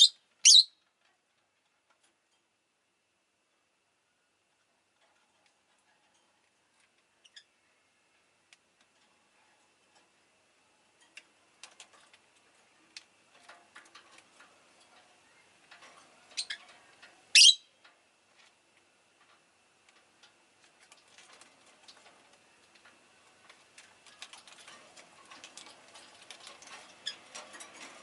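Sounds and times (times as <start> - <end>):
bird chirping: 0.0 - 0.8, 17.3 - 17.7
bird clicks and rustling: 0.7 - 2.6, 4.5 - 7.5, 8.4 - 10.2, 10.8 - 28.0.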